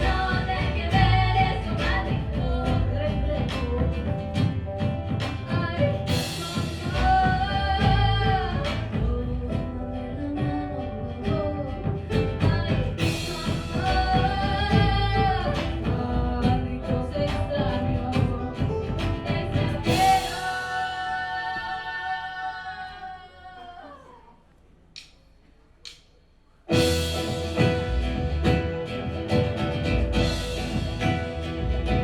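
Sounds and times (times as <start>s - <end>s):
banjo: 0.0s - 21.4s, 26.7s - 32.0s
double bass: 0.0s - 22.8s, 26.7s - 32.0s
acoustic guitar: 0.0s - 22.9s, 26.7s - 32.0s
woman singing: 0.0s - 24.4s.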